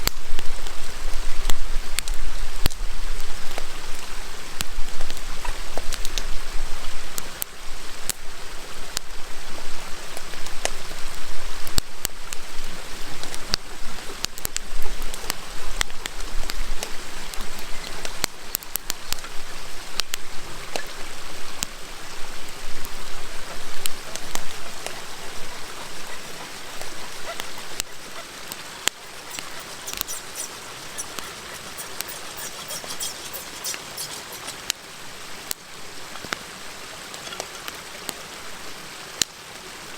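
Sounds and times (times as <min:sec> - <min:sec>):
river rushing: 0:20.6 - 0:39.9
wood fire crackling and popping: 0:23.8 - 0:34.8.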